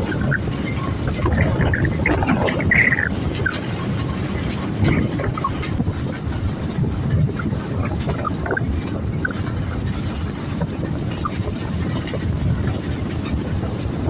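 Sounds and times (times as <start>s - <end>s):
engine rumbling: 0.0s - 14.0s.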